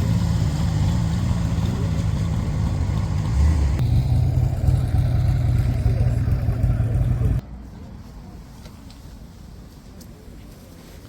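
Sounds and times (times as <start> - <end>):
motorcycle engine rumbling: 0.0 - 7.4.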